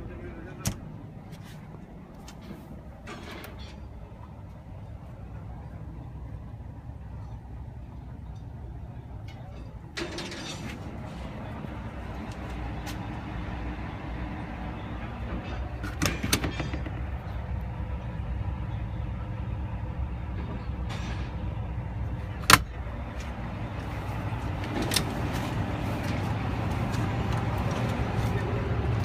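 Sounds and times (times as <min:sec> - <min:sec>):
diesel engine idling: 0:00.0 - 0:03.1, 0:10.8 - 0:29.0.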